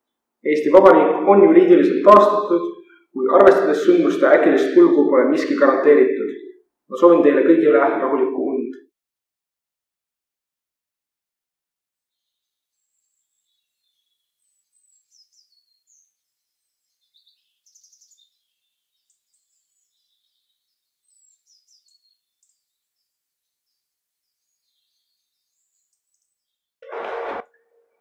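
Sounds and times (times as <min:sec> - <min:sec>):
faint birdsong chirps and trills: 0:12.0 - 0:26.8.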